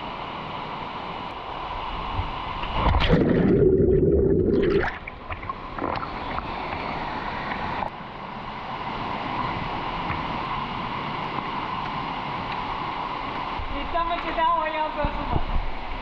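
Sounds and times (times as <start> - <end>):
mountain river rushing: 0.0 - 15.0
muffled water gurgling: 2.2 - 12.5.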